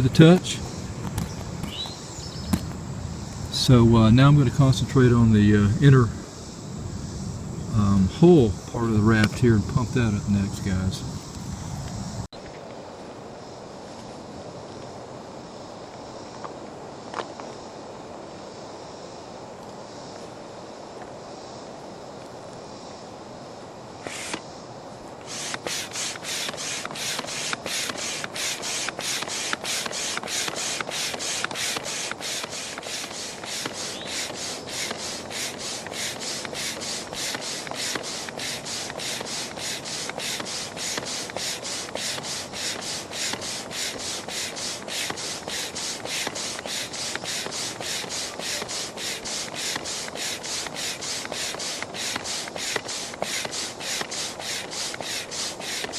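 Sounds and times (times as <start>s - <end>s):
foot pump air rushes: 0.0s - 12.3s, 24.0s - 55.9s.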